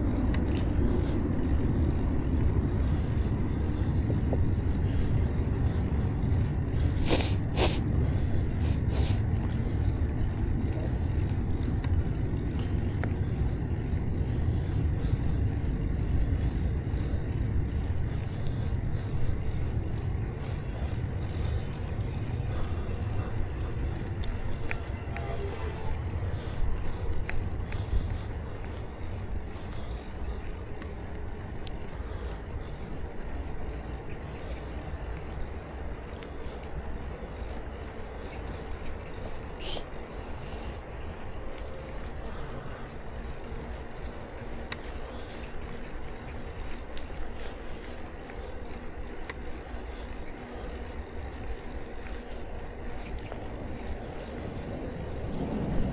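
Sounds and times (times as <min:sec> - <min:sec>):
bicycle tyres rolling on road: 0:00.0 - 0:55.9
faint ticks: 0:00.0 - 0:55.9
wind on microphone: 0:53.2 - 0:55.9.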